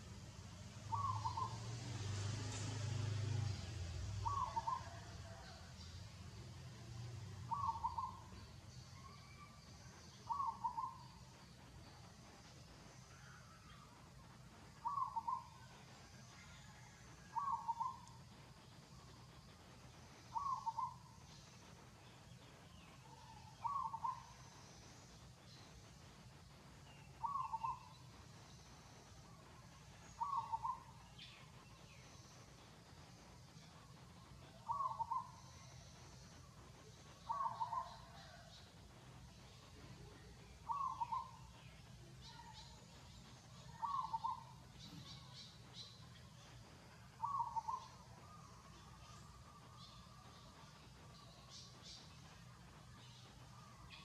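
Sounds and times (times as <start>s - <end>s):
faint chirps of other birds: 0.0s - 54.0s
steady low hum: 0.0s - 54.0s
bird calling: 0.9s - 1.6s, 7.5s - 8.3s, 10.3s - 11.2s, 17.4s - 18.0s, 20.3s - 21.0s, 23.3s - 24.4s, 27.2s - 28.0s, 30.1s - 31.3s, 34.7s - 35.8s, 37.2s - 38.5s, 40.6s - 41.5s, 43.6s - 45.3s, 47.2s - 50.4s.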